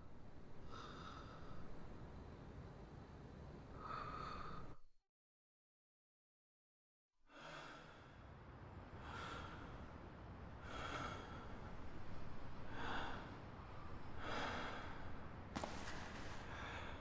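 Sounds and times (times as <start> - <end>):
person breathing heavily: 3.7 - 4.8, 7.3 - 8.3, 9.0 - 10.0, 10.6 - 15.4, 16.4 - 17.0.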